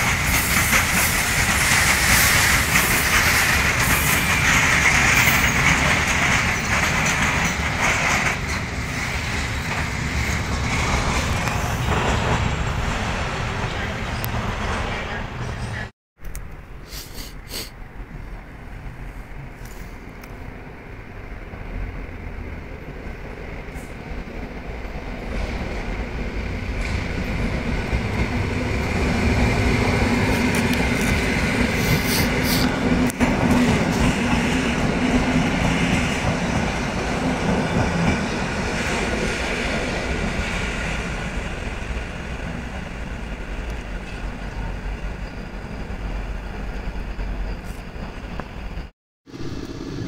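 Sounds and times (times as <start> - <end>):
clickety-clack over rail joints: 0.0 - 16.6, 23.7 - 45.4
train wheels rumbling on track: 0.0 - 50.0
wheel squeals: 44.0 - 48.9.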